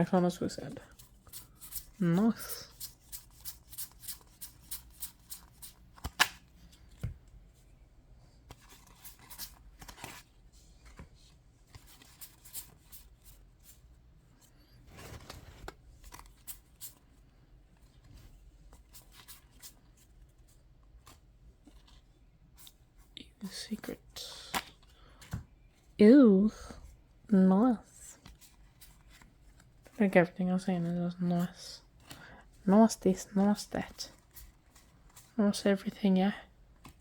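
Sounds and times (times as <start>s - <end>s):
cards rustling: 0.7s - 7.4s, 8.4s - 13.8s, 14.8s - 17.0s, 18.7s - 22.0s
cards being flipped: 0.9s - 7.2s, 8.5s - 11.1s
card snap: 6.0s - 6.4s.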